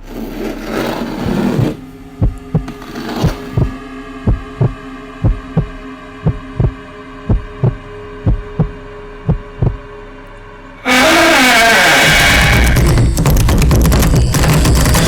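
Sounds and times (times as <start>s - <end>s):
eerie droning hum: 0.0s - 15.0s
heartbeat thumps: 1.2s - 9.9s, 12.4s - 15.0s.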